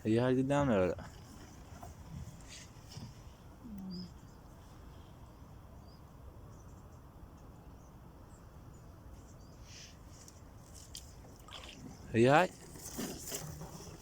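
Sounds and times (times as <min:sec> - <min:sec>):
low steady hiss and rumble: 0:00.0 - 0:14.0
faint high chirps: 0:03.6 - 0:04.5.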